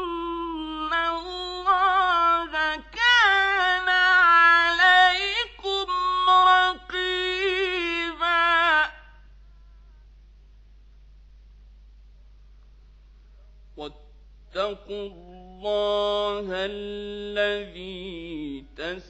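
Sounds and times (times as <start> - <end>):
man reciting in melodic chant: 0.0 - 9.1, 13.8 - 19.0.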